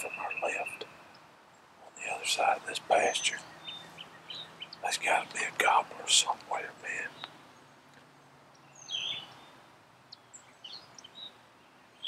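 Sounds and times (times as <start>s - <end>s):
bird high call: 0.0s - 1.1s.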